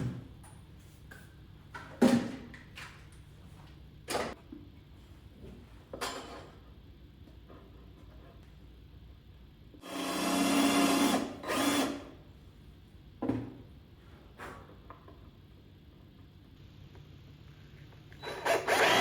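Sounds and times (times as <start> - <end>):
power drill driving into wood: 9.8 - 12.0, 18.2 - 19.0.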